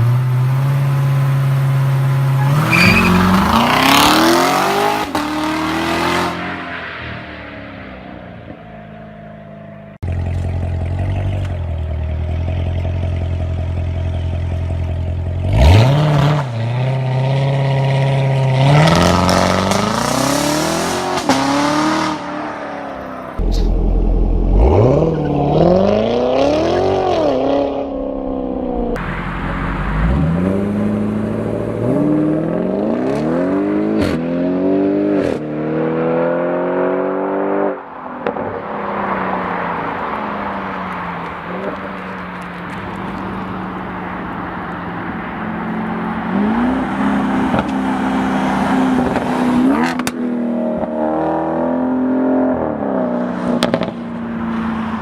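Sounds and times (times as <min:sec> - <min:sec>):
car engine accelerating hard: 0:10.1 - 0:38.5.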